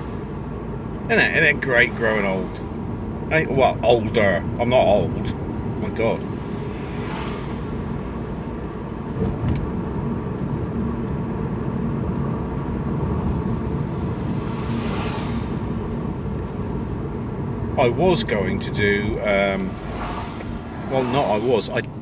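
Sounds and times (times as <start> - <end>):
car engine and tyre rumble: 0.0 - 22.0.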